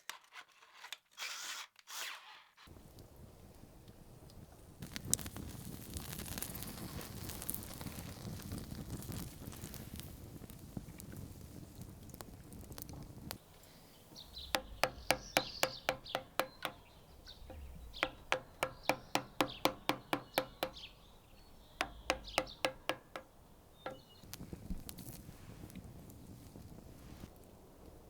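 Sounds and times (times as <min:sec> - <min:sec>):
birds chirping: 0:13.4 - 0:24.6
knife chopping on wooden board: 0:14.4 - 0:16.8, 0:17.4 - 0:20.9, 0:21.8 - 0:23.3.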